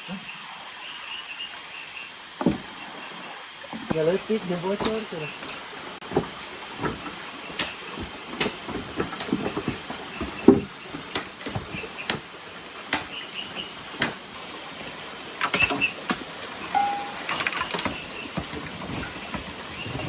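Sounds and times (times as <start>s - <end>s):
steady rain hiss: 0.0s - 20.0s
sharp taps and knocks: 4.8s - 12.3s.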